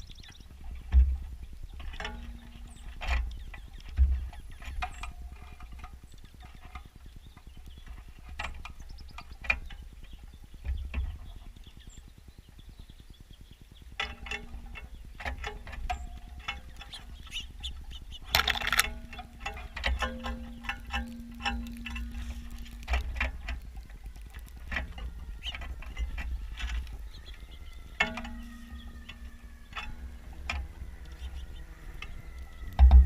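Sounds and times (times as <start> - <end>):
low wind rumble: 0.0 - 33.0
wings fluttering: 0.0 - 33.0
bird feet and beaks clicking on feeder: 13.9 - 33.0.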